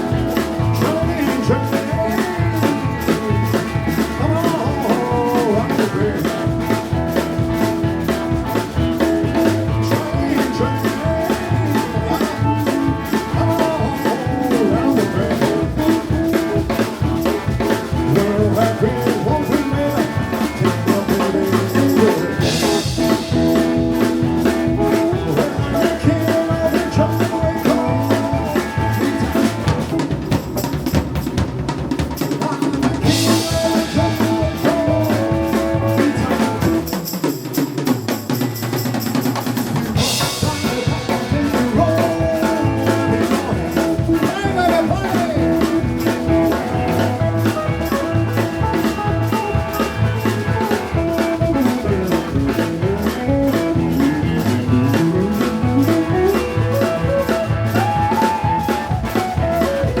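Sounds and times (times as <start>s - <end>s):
drum kit beat: 0.0s - 60.0s
rock and roll band playing: 0.0s - 60.0s.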